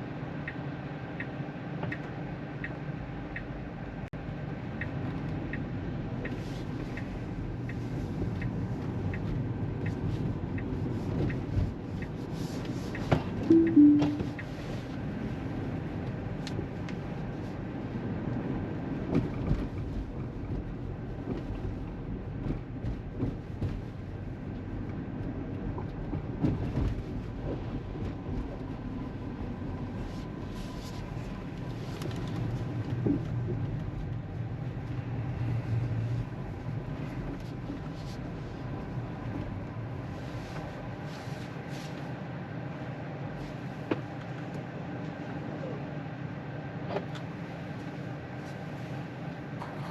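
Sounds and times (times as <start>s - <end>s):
two-note falling chime: 13.5s - 14.4s.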